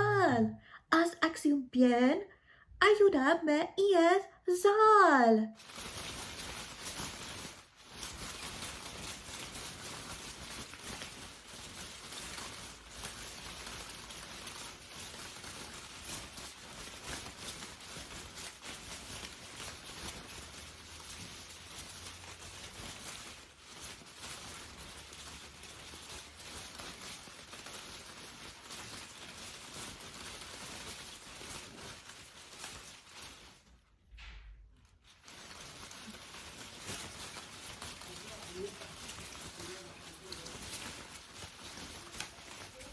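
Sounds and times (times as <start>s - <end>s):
rain falling: 35.3s - 42.9s.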